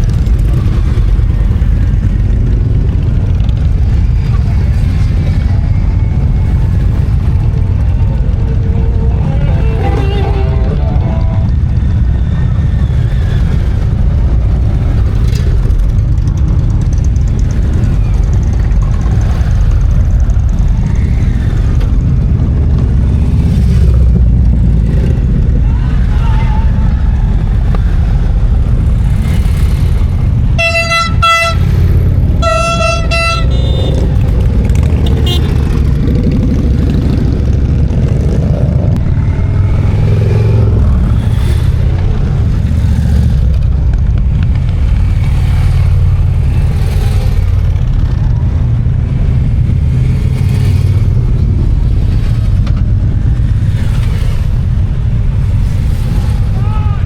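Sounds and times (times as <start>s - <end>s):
motorcycles riding past: 0.0s - 57.0s
motorcycle horn honking: 8.8s - 11.8s, 30.6s - 34.2s, 35.0s - 35.6s.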